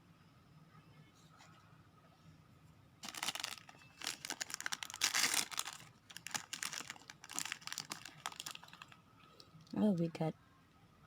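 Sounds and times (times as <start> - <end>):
plastic bag crinkling: 3.0 - 9.0.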